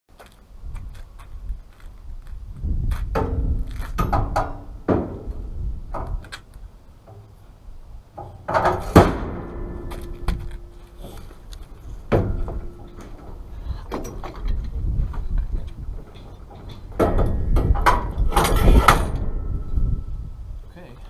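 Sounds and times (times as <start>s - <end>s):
heavy metal parts clanking: 8.1s - 20.0s.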